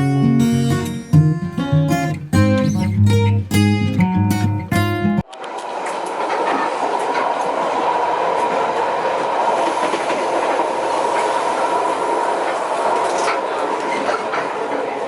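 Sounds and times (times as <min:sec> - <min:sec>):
train wheels on rails: 0:05.3 - 0:15.0.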